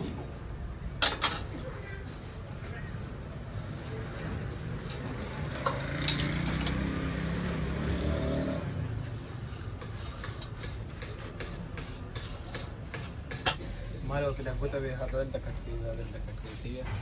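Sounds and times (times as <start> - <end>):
vehicle engine running: 4.2 - 10.6.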